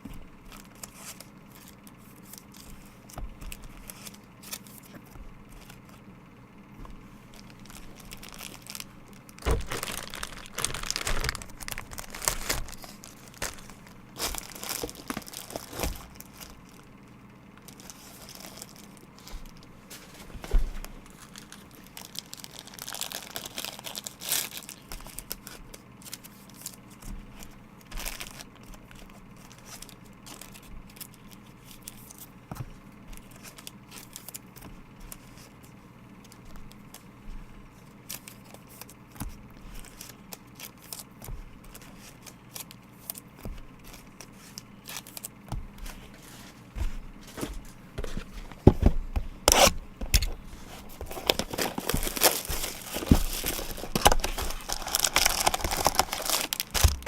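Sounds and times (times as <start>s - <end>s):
wrappers crinkling: 0.0s - 6.0s, 7.2s - 17.0s, 17.6s - 32.4s, 33.1s - 48.7s, 49.4s - 57.0s
cards clicking and rustling: 0.4s - 6.1s, 6.8s - 16.9s, 17.6s - 57.0s
card packs tearing open: 0.5s - 5.9s, 7.3s - 16.9s, 17.6s - 19.7s, 20.5s - 27.0s, 27.8s - 32.3s, 39.7s - 45.3s, 49.5s - 57.0s.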